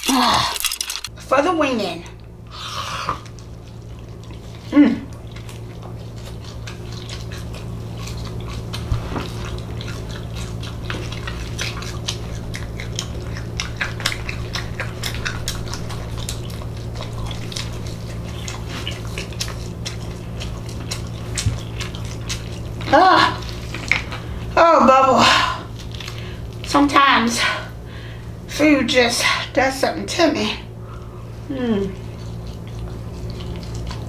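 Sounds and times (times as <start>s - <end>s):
chewing and lip-smacking: 0.0s - 1.1s, 2.2s - 24.6s, 25.6s - 26.8s, 31.9s - 34.0s
steady low hum: 0.0s - 34.0s.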